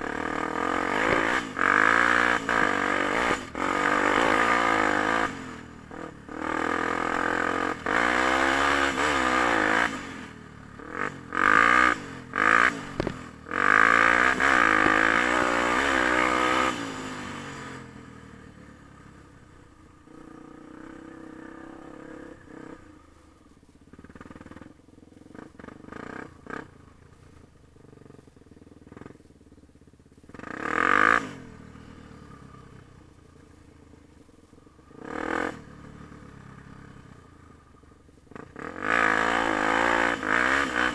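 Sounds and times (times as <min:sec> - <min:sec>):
dirt bike engine revving: 0:00.0 - 0:17.8, 0:30.4 - 0:32.5, 0:34.9 - 0:36.2, 0:38.3 - 0:40.9.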